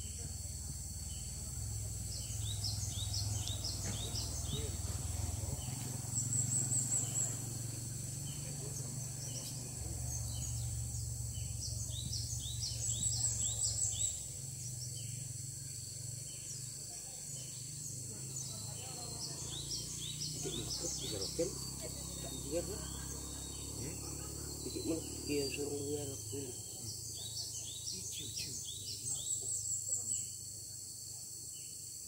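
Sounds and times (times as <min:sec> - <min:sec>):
insect drone: 0:00.0 - 0:32.0
high chirping bird calls: 0:02.1 - 0:15.2.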